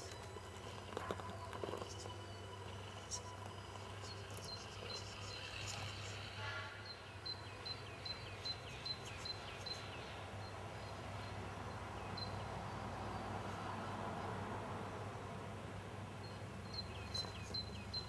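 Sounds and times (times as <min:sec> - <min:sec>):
bird chirping: 0:00.0 - 0:13.6, 0:16.2 - 0:18.0
steady low hum: 0:00.0 - 0:13.8
outdoor background noise: 0:00.0 - 0:18.0.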